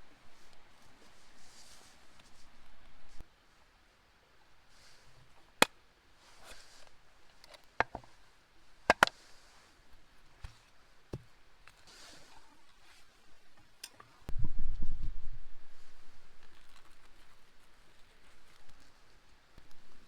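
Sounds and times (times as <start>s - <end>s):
soft rustling: 0.2s - 3.6s, 6.2s - 8.4s, 15.7s - 20.0s.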